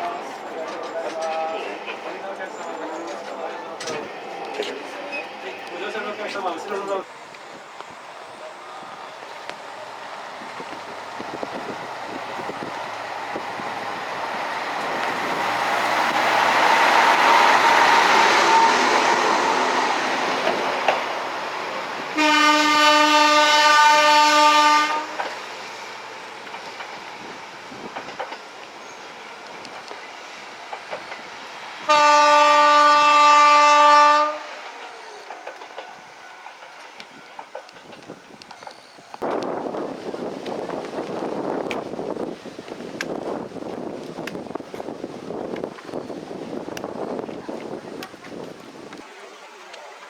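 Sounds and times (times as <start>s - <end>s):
diesel railcar running: 0.0s - 50.0s
train horn blasts: 18.0s - 19.8s, 22.2s - 25.3s, 31.8s - 34.7s.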